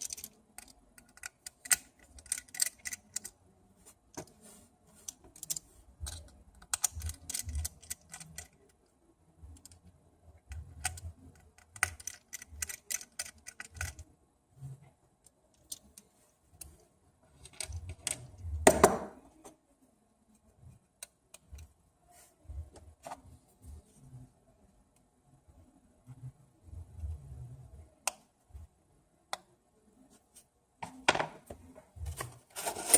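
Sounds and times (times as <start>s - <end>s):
parts clattering: 30.8s - 32.9s.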